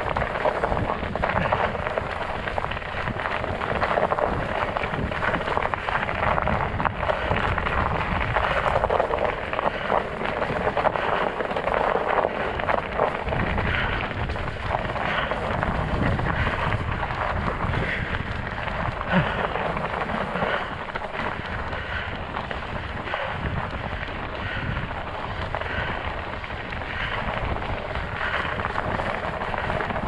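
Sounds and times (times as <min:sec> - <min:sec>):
tires crunching over snow and ice: 0:00.0 - 0:30.0
wind rumbling on microphone: 0:00.0 - 0:30.0.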